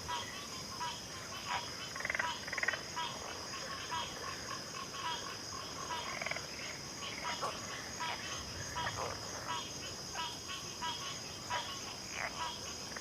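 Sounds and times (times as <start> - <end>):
frogs calling: 0.0 - 13.0.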